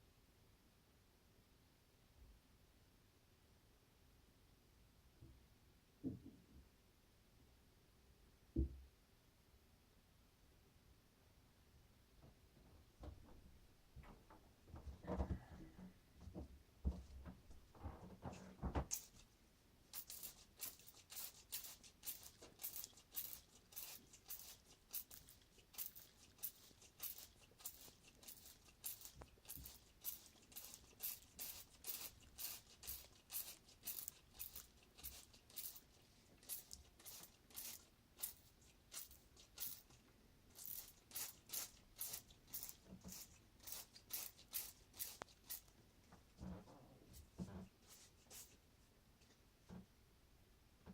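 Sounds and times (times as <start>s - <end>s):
faint scratchy strokes: 46.5s - 48.9s.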